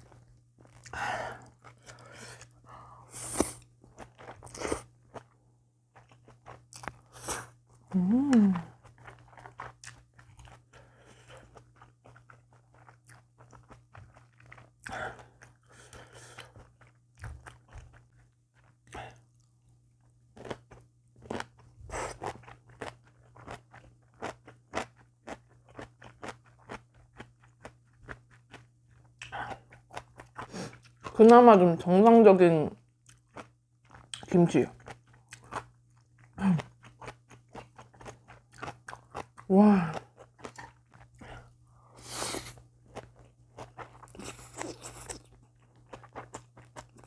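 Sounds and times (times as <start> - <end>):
person chewing crunchy food: 0.0 - 31.2, 33.0 - 47.0
faint low hum: 0.0 - 47.0
mouth sounds: 7.9 - 8.7.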